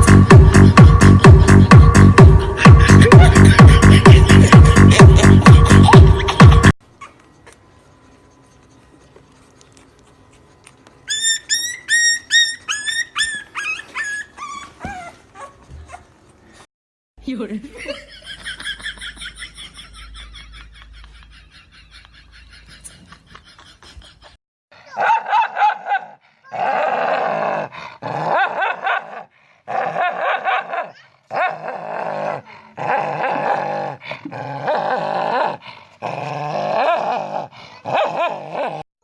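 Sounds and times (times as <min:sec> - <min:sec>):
dog whimpering: 0:11.1 - 0:16.6
dog growling and barking: 0:24.8 - 0:38.9.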